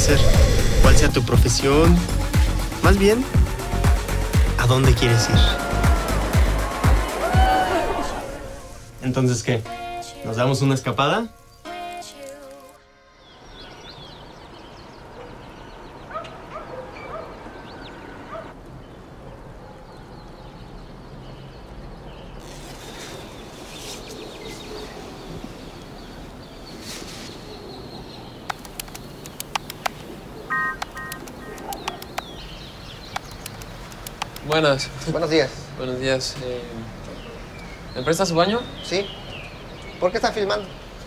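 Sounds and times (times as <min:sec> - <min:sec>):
steady background wash: 0:00.0 - 0:11.3
birds calling and chirping: 0:13.2 - 0:41.0
sharp clicks: 0:28.5 - 0:32.4, 0:33.1 - 0:34.6.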